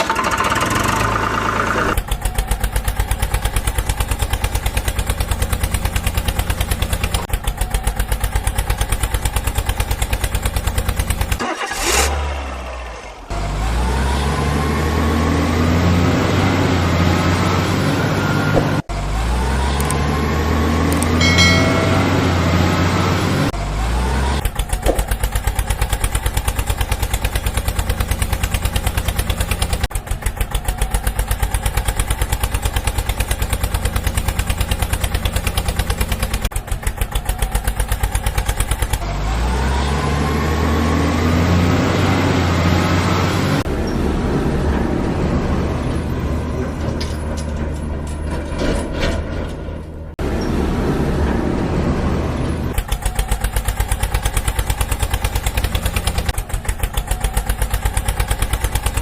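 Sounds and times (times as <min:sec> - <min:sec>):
heavy diesel engine revving: 0:00.0 - 0:47.0.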